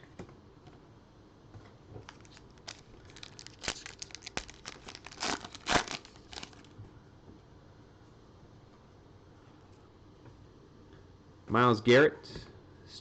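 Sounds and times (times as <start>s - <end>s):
wrapper tearing and crinkling: 2.0s - 6.7s.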